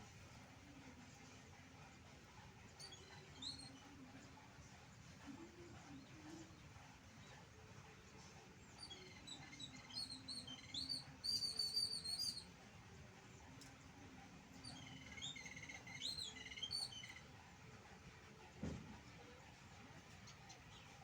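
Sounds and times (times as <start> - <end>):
small bird chirping: 8.7 - 12.5, 14.6 - 17.2.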